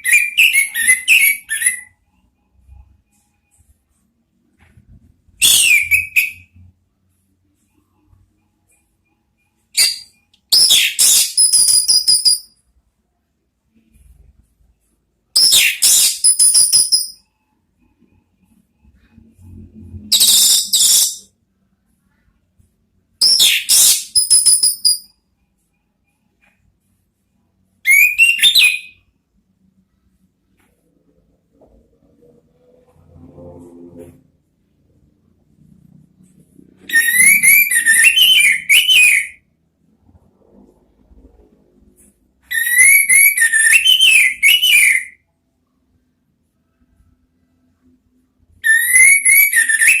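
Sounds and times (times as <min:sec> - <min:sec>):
thrush singing warbling whistles: 0:05.4 - 0:06.6, 0:20.1 - 0:21.3, 0:36.8 - 0:39.4, 0:42.5 - 0:45.2, 0:48.6 - 0:50.0.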